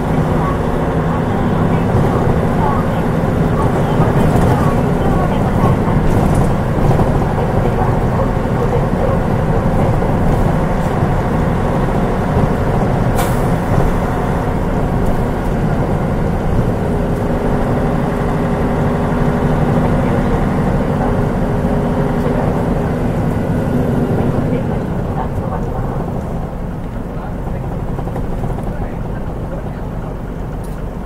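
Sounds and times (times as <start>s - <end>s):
bus diesel engine drone: 0.0s - 31.0s.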